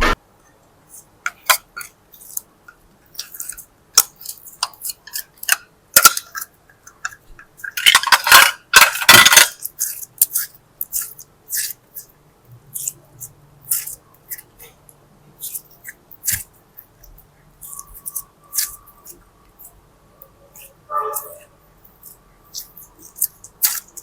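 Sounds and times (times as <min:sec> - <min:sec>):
small hard objects clicking: 0:03.1 - 0:12.1, 0:15.4 - 0:24.0.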